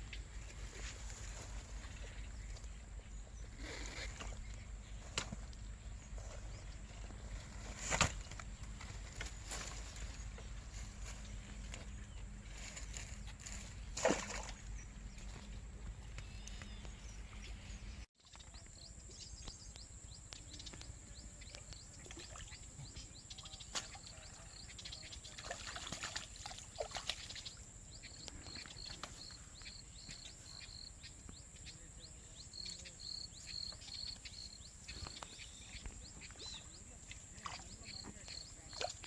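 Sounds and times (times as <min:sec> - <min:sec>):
water trickling and splashing: 0:12.6 - 0:14.8, 0:23.6 - 0:27.7, 0:35.8 - 0:39.0.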